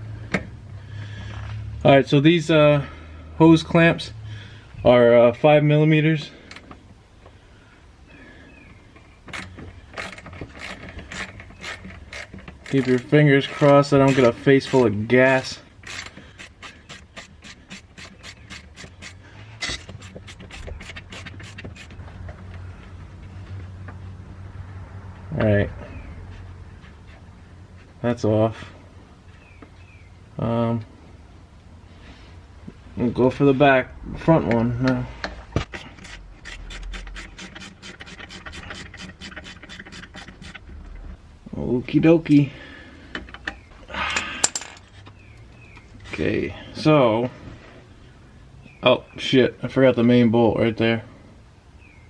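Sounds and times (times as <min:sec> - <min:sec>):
hand ratchet clicking: 0:09.3 - 0:14.9, 0:15.8 - 0:22.0, 0:35.7 - 0:40.6
hose clamp screw rasping: 0:09.3 - 0:14.9, 0:15.8 - 0:22.0, 0:35.6 - 0:40.7.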